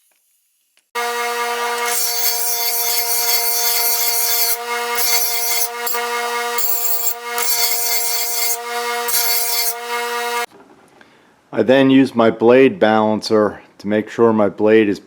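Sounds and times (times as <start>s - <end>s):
bench grinder motor hum: 1.0s - 10.5s
metal blade grinding on wheel: 1.0s - 10.5s.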